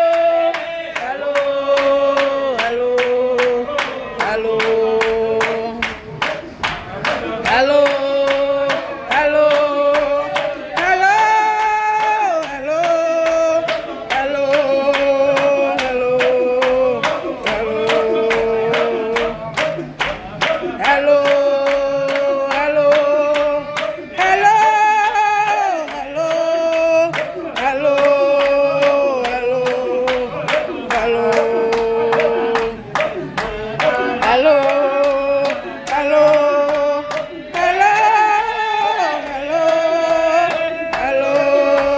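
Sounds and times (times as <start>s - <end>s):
group singing a hymn: 0.0s - 41.9s
rhythmic hand clapping: 0.0s - 41.9s.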